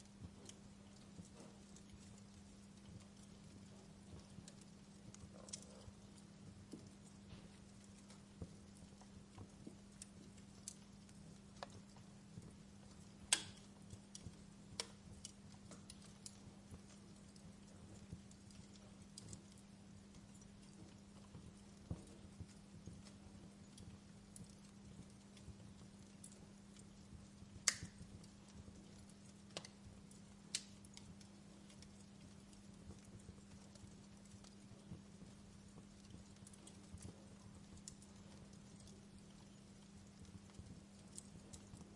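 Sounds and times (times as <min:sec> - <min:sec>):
faint steady hum: 0:00.0 - 0:41.9
wood fire crackling: 0:00.0 - 0:41.9.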